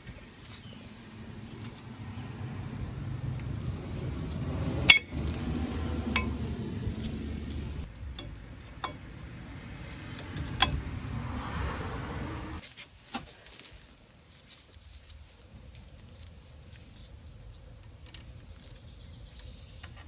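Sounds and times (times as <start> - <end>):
low steady rumble: 0.0 - 12.6.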